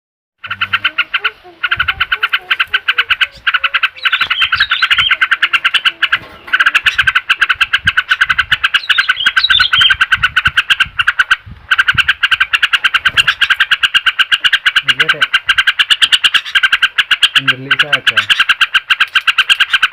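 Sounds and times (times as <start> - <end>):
fast pulsing bird chatter: 0.4 - 19.9
higher bird calls: 0.4 - 19.9.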